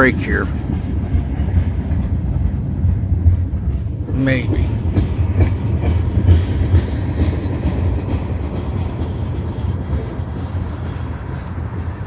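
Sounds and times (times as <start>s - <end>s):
low rumble of train wheels: 0.0s - 12.0s.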